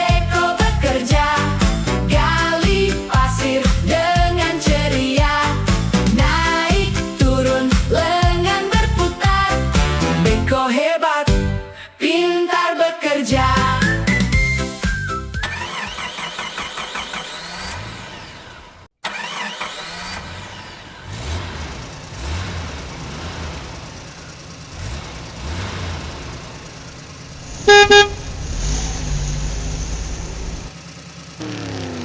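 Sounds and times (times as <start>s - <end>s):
vehicle engine: 14.9s - 32.0s
horn beeps: 27.6s - 28.3s.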